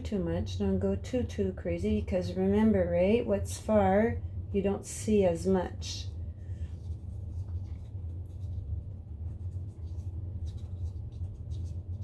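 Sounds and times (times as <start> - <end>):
steady low hum: 0.0 - 12.0
paintbrush scratching on paper: 6.5 - 12.0.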